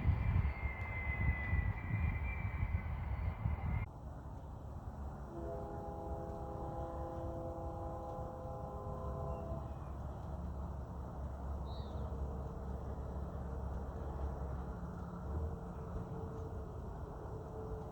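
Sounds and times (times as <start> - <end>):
low rumble: 0.0 - 3.9.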